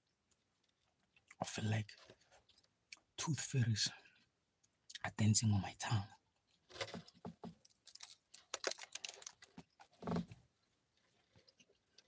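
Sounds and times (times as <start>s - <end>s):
person chewing cake: 0.0s - 3.1s, 6.4s - 10.0s, 10.6s - 12.0s
wet mouth clicks and lip-smacks: 7.9s - 9.6s.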